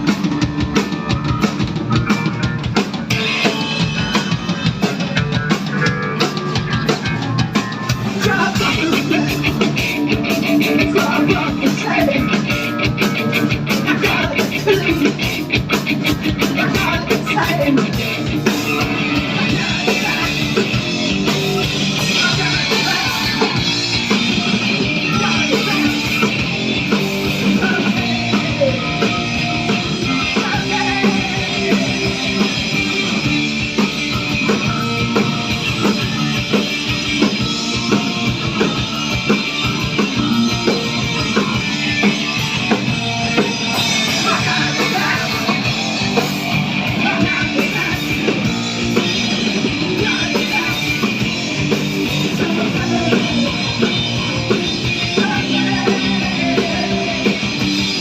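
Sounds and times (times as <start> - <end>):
drum kit: 0.0 - 58.0
electric guitar: 0.0 - 58.0
person singing: 7.0 - 12.8, 13.7 - 15.4, 16.2 - 20.8, 21.6 - 26.4, 27.2 - 32.7, 43.4 - 49.0, 49.7 - 57.7.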